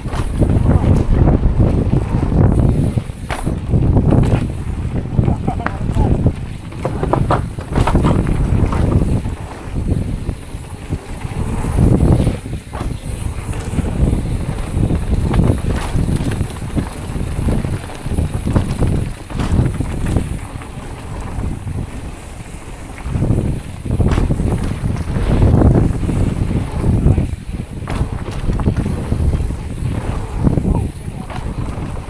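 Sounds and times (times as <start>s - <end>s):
bike rumbling on dirt trail: 0.0s - 32.0s
wind on microphone: 0.0s - 32.0s
sharp knocks and clatters: 5.1s - 9.9s, 11.8s - 20.7s, 23.1s - 32.0s.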